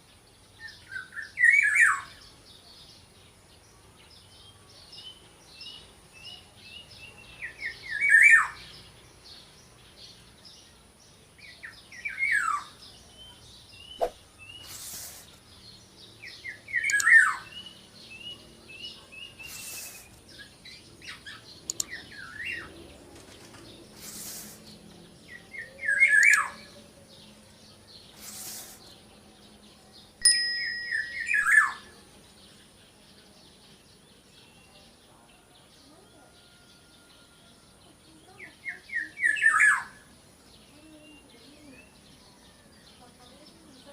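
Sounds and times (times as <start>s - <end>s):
short bird chirps: 13.8s - 15.4s, 19.3s - 20.5s, 30.2s - 31.9s
bird calls sweeping down: 14.0s - 15.3s.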